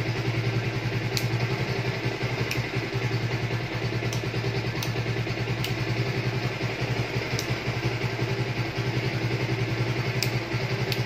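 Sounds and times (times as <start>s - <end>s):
motorcycle engine idling: 0.0s - 11.0s
light ticks: 1.1s - 1.4s, 2.4s - 2.7s, 4.0s - 5.0s, 5.6s - 5.8s, 7.3s - 7.6s, 10.2s - 11.0s.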